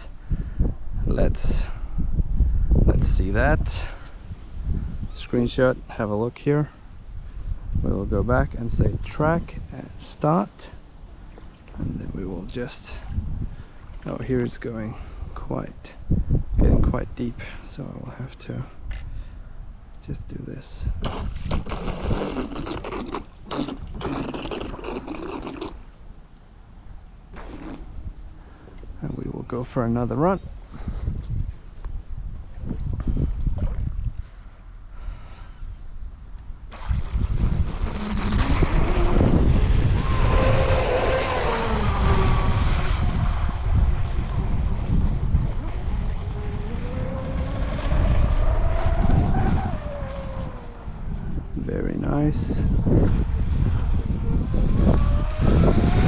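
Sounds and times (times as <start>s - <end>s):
wind buffeting microphone: 0.0s - 25.2s, 27.3s - 56.0s
water splashing and sloshing: 21.0s - 26.1s, 31.6s - 34.8s, 36.7s - 48.8s
electric boat motor whining: 37.2s - 51.4s.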